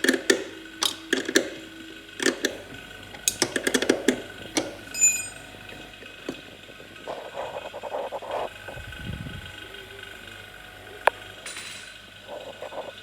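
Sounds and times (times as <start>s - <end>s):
faint steady hum: 0.0s - 13.0s
sharp clicks and knocks: 2.2s - 5.5s.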